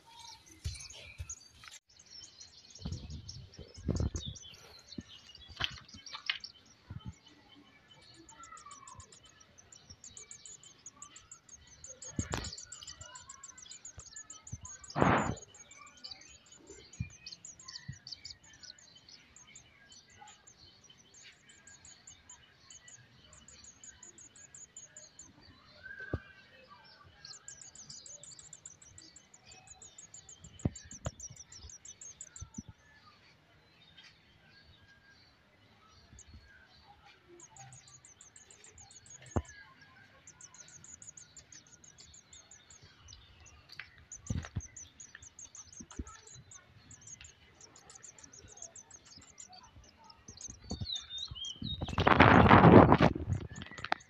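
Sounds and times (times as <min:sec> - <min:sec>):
young bird chirping high notes: 0:07.8 - 0:32.7, 0:37.0 - 0:54.0.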